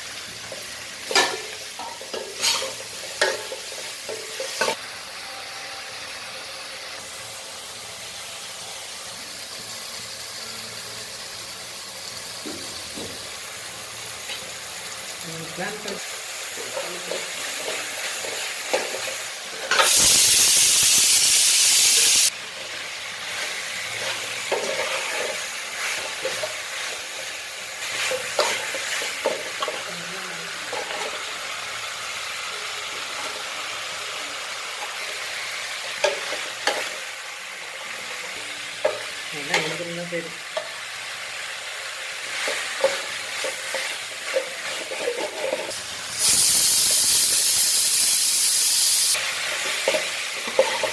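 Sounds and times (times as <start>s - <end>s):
food sizzling in a pan: 0.0s - 50.9s
spatula scraping a pan: 1.1s - 4.8s, 23.2s - 27.0s, 42.3s - 45.8s, 49.4s - 50.9s
loud hissing burst: 19.8s - 22.3s, 46.1s - 49.2s.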